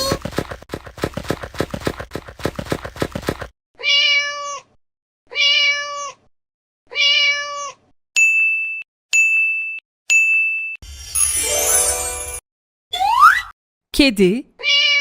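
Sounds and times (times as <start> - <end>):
cat meowing: 3.8 - 6.3, 6.9 - 7.9, 14.6 - 15.0.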